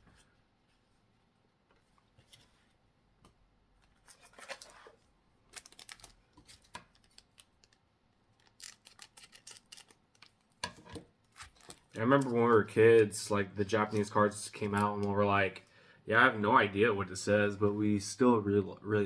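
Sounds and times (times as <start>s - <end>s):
trading cards and packaging rustling: 3.8s - 15.7s.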